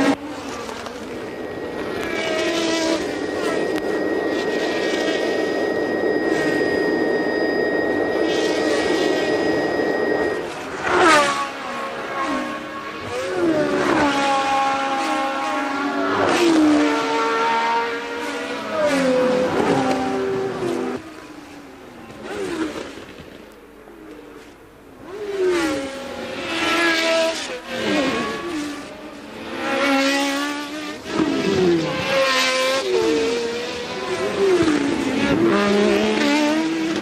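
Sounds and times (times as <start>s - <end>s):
racing car engines passing: 0.0s - 23.2s, 24.2s - 37.0s.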